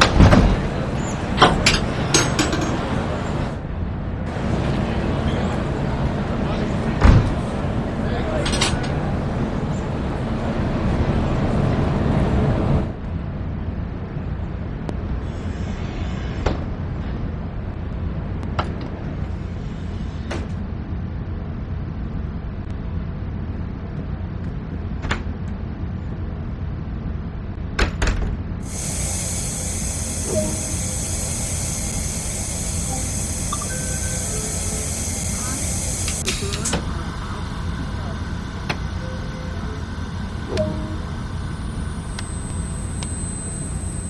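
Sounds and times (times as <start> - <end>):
train rumbling: 0.0 - 27.6, 28.6 - 44.0
steady high hiss: 28.6 - 44.0.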